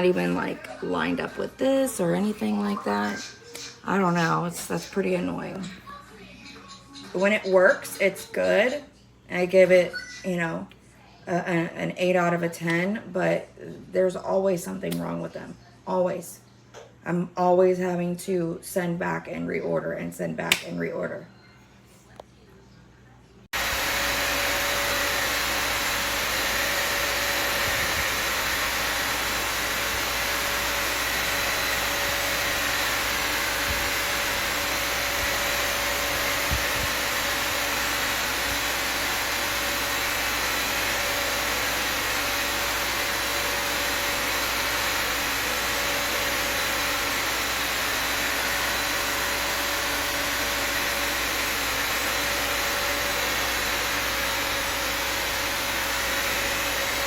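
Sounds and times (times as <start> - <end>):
vacuum cleaner motor running: 23.5 - 57.0.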